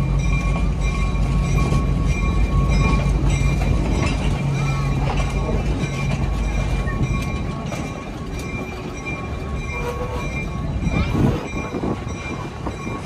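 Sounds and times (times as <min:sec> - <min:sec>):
steel wheels rumbling on rails: 0:00.0 - 0:13.0
faint high squealing tones: 0:09.6 - 0:13.0.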